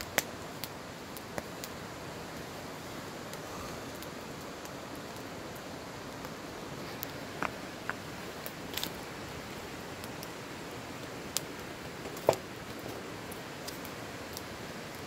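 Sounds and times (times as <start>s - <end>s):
campfire crackling: 0.0s - 15.0s
steady hiss: 0.0s - 15.0s.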